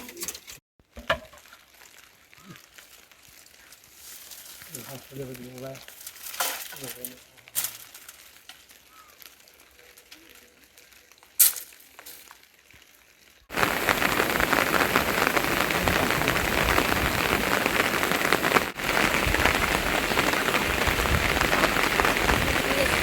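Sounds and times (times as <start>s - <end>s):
heavy rain: 13.5s - 23.0s.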